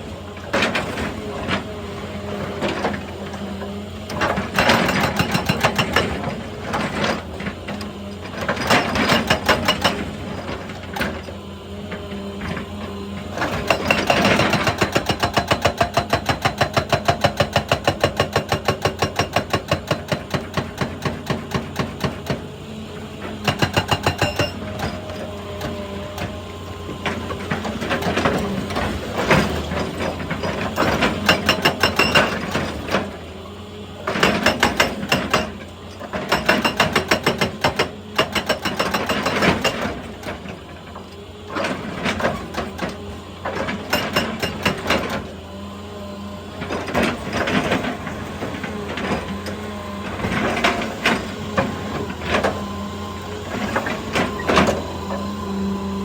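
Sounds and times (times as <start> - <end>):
hydraulic breaker hammering rock: 2.5 - 11.3, 11.9 - 33.2, 34.0 - 40.8, 41.5 - 45.5, 46.6 - 56.0
engine hum: 39.5 - 56.0.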